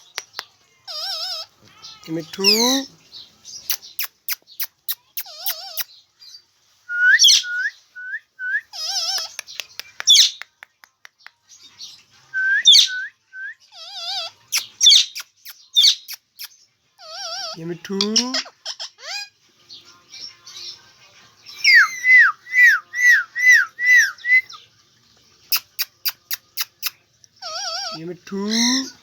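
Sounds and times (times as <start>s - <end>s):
parrot warbling whistles: 6.9s - 9.2s, 12.4s - 13.5s, 21.6s - 24.6s.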